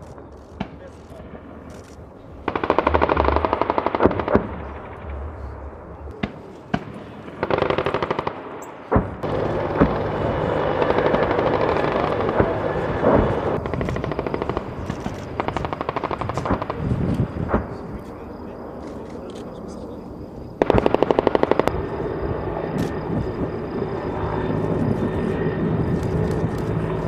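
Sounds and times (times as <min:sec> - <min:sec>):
automatic gunfire bursts: 0:02.4 - 0:04.5, 0:07.4 - 0:08.4, 0:09.2 - 0:16.8, 0:20.6 - 0:21.8.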